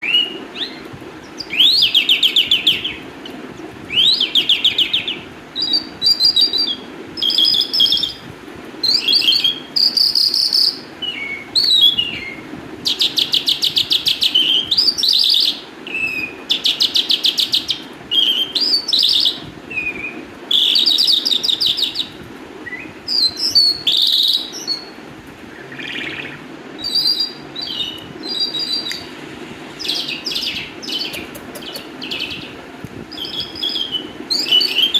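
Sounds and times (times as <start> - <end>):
lark singing: 0.0 - 3.1, 3.9 - 8.2, 8.8 - 29.1, 29.8 - 34.9.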